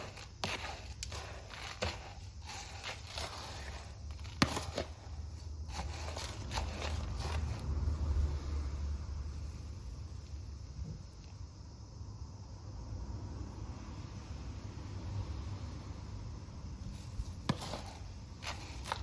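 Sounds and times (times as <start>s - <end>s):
pots and soil being handled: 0.0s - 8.5s, 16.8s - 19.0s.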